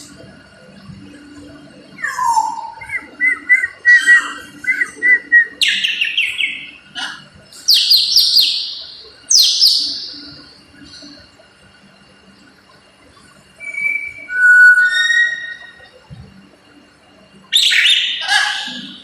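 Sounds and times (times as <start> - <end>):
parrot whistling and chirping: 2.0 - 7.1, 13.6 - 15.8, 17.5 - 19.0.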